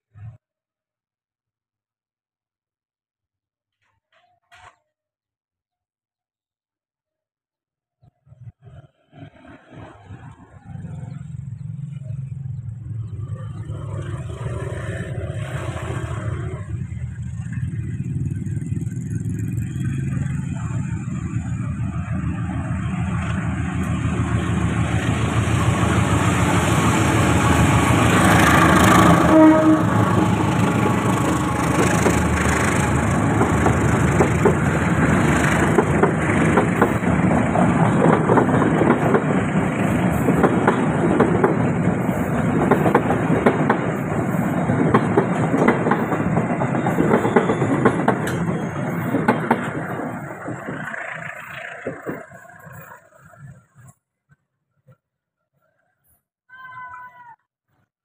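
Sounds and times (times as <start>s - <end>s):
diesel train passing: 8.8s - 54.0s
wheels clattering over rails: 13.6s - 53.9s.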